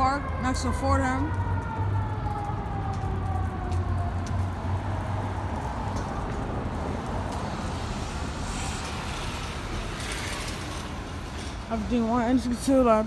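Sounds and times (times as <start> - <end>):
fire truck siren winding down: 0.0 - 5.4.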